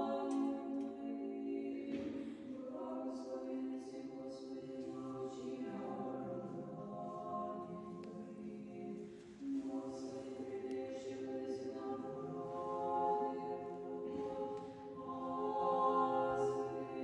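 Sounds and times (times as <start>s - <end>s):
choir singing chant: 0.0s - 17.0s.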